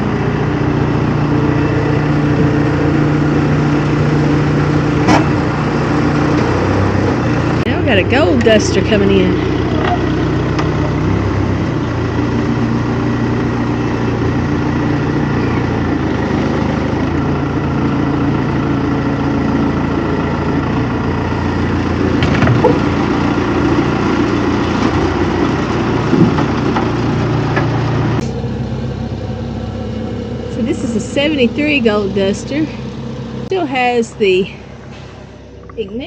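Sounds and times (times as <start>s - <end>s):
vehicle engine running: 0.0s - 36.0s
short knocks: 22.1s - 23.0s.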